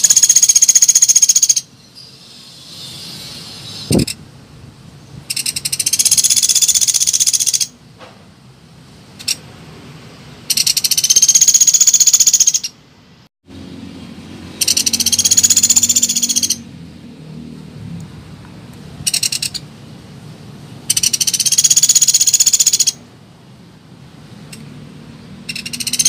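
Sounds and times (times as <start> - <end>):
woodpecker rattling trill: 0.0 - 1.7, 5.3 - 7.7, 10.5 - 12.8, 14.6 - 16.6, 19.0 - 19.7, 20.8 - 23.0, 25.4 - 26.0.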